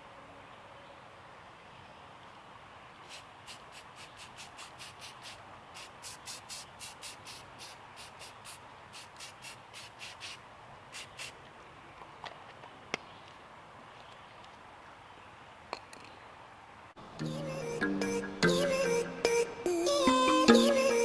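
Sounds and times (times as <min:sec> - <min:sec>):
spray paint can hissing bursts: 0:03.0 - 0:11.4.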